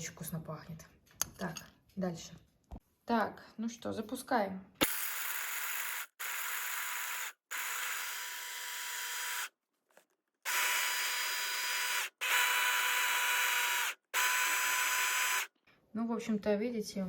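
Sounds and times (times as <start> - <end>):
electric grinder grinding almonds: 4.8 - 9.6, 10.5 - 15.5.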